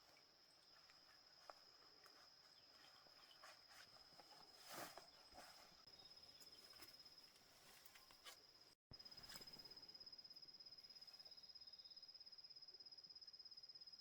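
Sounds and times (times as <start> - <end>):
small rustles: 0.0 - 9.8.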